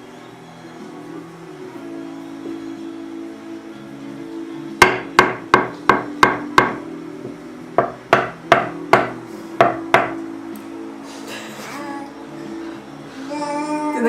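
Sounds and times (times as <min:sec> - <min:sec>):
spoon knocking on tabletop: 0:04.8 - 0:06.8, 0:07.8 - 0:10.2.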